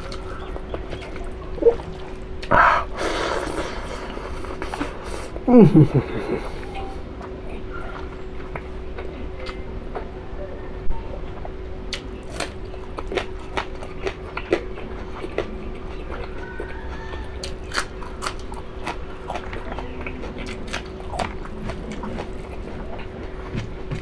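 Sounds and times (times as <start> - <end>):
person chewing: 0.0 - 5.5, 11.3 - 24.0
low hum: 0.0 - 24.0.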